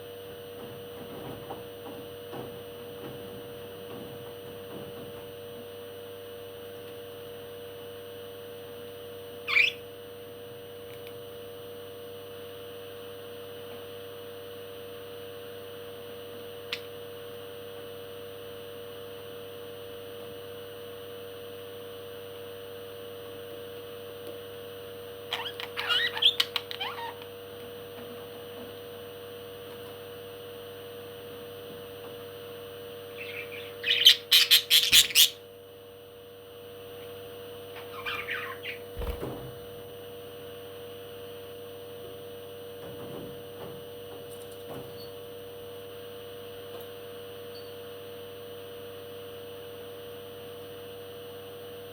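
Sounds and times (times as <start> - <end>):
steady background hum: 0.0 - 51.9
parrot calling: 9.5 - 9.8, 25.3 - 27.3, 33.1 - 35.4, 37.8 - 38.9.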